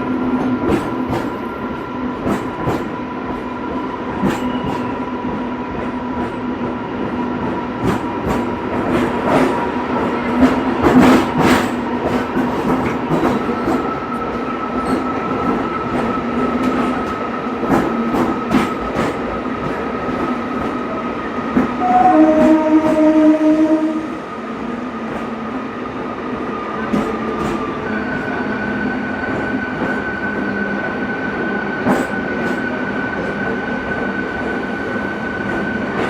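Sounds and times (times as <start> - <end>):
train running whine: 0.0 - 36.0
train wheels clicking over joints: 7.8 - 20.8
train horn: 21.8 - 24.3.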